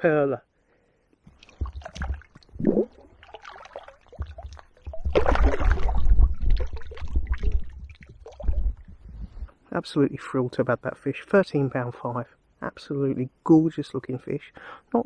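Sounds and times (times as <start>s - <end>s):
river water splashing: 1.3s - 9.0s.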